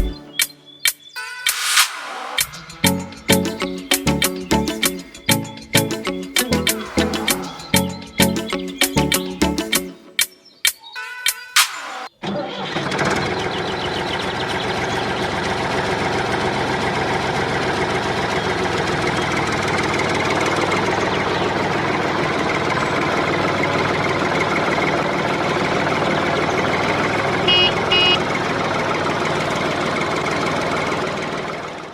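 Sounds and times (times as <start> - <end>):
small tractor engine running: 12.3 - 31.9.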